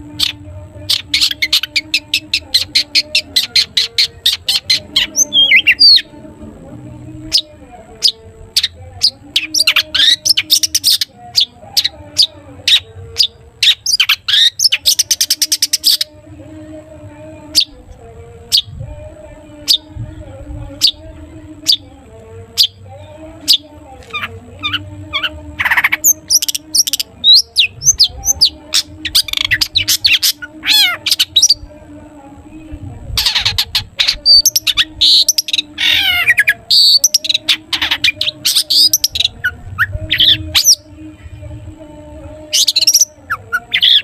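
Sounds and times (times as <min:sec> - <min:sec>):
shrike calling in sharp notes: 0:23.4 - 0:31.7, 0:33.2 - 0:40.8.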